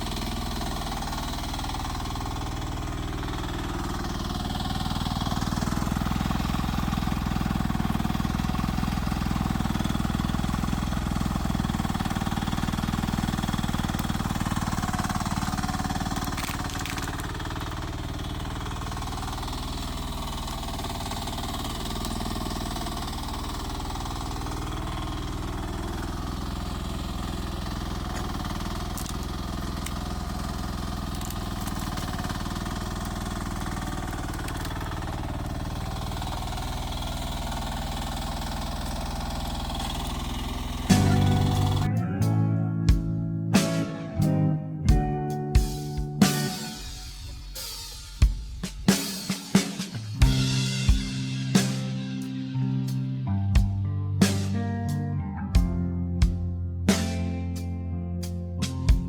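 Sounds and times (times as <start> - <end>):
mini excavator engine running: 0.0 - 47.1.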